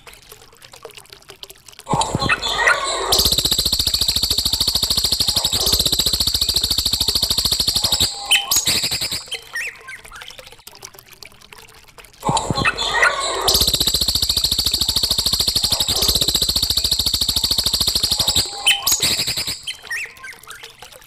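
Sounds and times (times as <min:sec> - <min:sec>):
songbird rattling trill: 0:02.2 - 0:09.8, 0:12.5 - 0:20.4
soft bird chirps: 0:02.2 - 0:10.4, 0:12.6 - 0:20.8.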